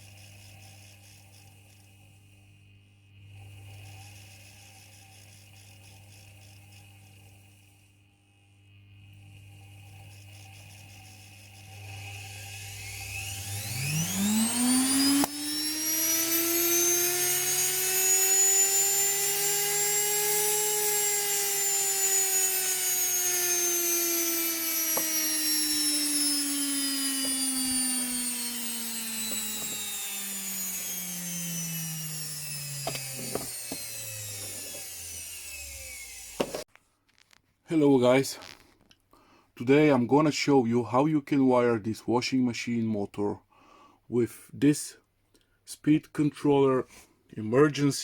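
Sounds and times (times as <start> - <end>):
washing machine motor running: 8.3 - 36.6.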